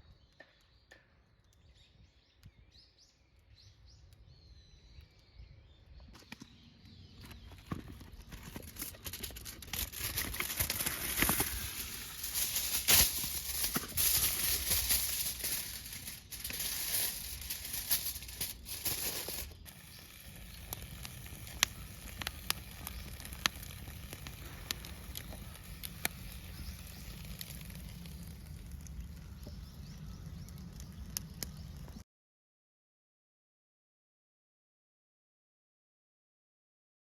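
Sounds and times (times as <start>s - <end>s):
campfire crackling and popping: 7.6s - 32.0s
loud rustling: 8.4s - 19.8s.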